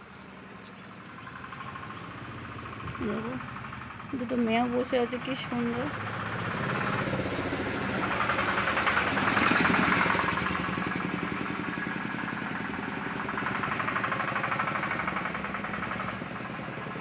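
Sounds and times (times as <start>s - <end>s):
engine chugging: 0.0s - 17.0s.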